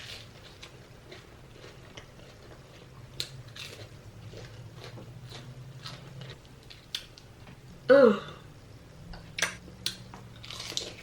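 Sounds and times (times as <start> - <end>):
person chewing food: 0.0 - 7.3, 9.4 - 11.0
faint low hum: 0.0 - 11.0.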